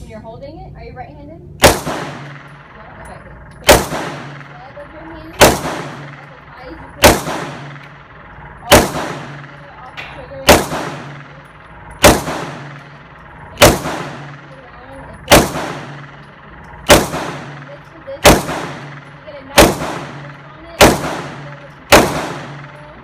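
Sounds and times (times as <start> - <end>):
gunshots with echo: 1.6 - 3.0, 3.6 - 23.0.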